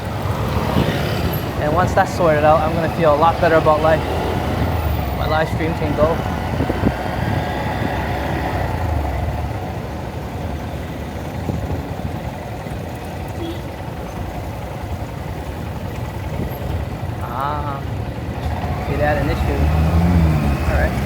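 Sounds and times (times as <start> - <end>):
traffic noise: 0.0 - 21.0
small motorcycle engine idling: 8.7 - 19.6.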